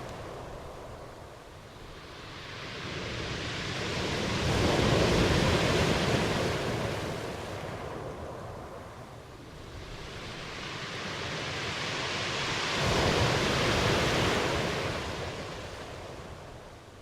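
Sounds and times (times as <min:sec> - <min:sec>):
ocean wave washing ashore: 0:01.8 - 0:08.2, 0:09.5 - 0:16.6.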